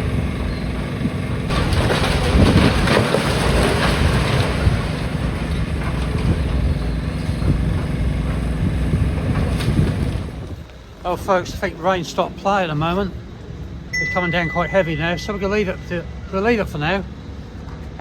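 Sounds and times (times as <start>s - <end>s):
wind buffeting microphone: 0.0s - 12.1s
diesel engine running: 0.0s - 18.0s.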